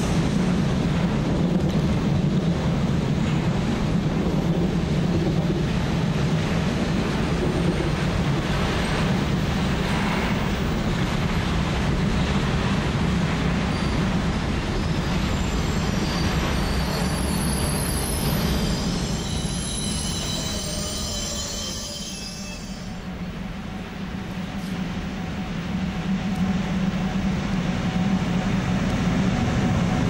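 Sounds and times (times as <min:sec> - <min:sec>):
freight train wheels rumbling: 0:00.0 - 0:30.0
high-pitched wheel squeal: 0:14.8 - 0:23.0.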